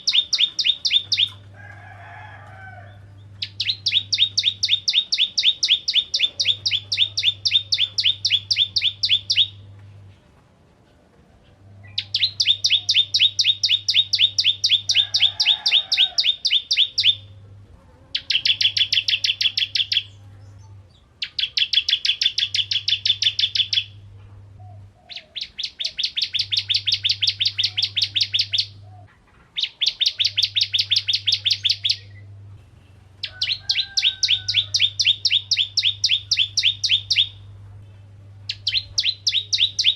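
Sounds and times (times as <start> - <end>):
bird singing rapid high notes: 0.0 - 1.4, 3.4 - 9.6, 11.9 - 17.3, 18.2 - 20.2, 21.2 - 24.0, 25.4 - 28.8, 29.6 - 32.2, 33.3 - 37.4, 38.5 - 39.9.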